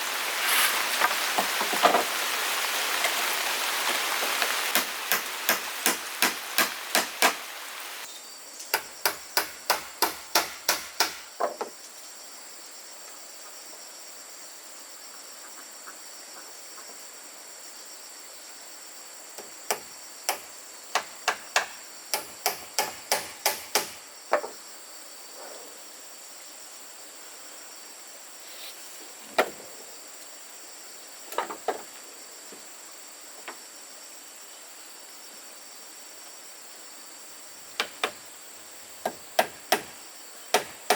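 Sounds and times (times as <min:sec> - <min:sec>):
insects droning: 0:00.0 - 0:40.9
hammer striking wood: 0:04.7 - 0:07.4, 0:08.7 - 0:11.6, 0:19.7 - 0:24.0, 0:39.0 - 0:40.9.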